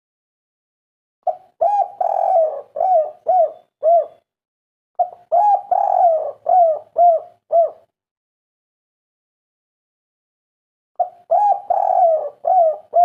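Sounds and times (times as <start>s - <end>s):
dove cooing: 1.2s - 4.3s, 5.0s - 7.9s, 11.0s - 13.0s.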